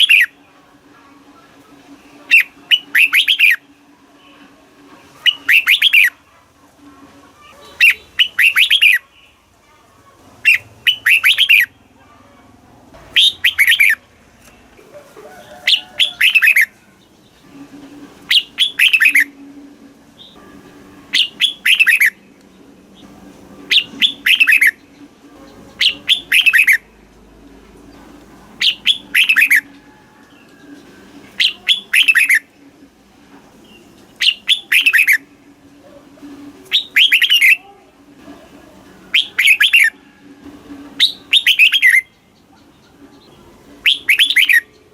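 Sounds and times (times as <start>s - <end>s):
bird singing whistled notes: 0.0s - 0.4s, 2.3s - 3.7s, 5.2s - 6.2s, 7.8s - 9.0s, 10.5s - 11.7s, 13.2s - 14.0s, 15.7s - 16.7s, 18.3s - 19.4s, 21.1s - 22.2s, 23.7s - 24.8s, 25.8s - 26.8s, 28.6s - 29.8s, 31.4s - 32.4s, 34.2s - 35.2s, 36.6s - 37.6s, 39.1s - 40.0s, 41.0s - 42.2s, 43.8s - 44.8s.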